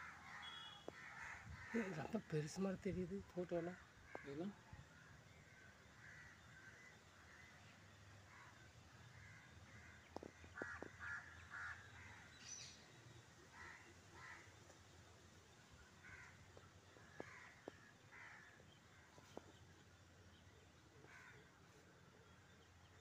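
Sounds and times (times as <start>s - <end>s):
crow-like caws: 0.0s - 2.2s, 6.0s - 7.4s, 9.2s - 12.3s, 16.0s - 18.6s, 21.0s - 21.5s
faint bird calls: 0.0s - 2.2s.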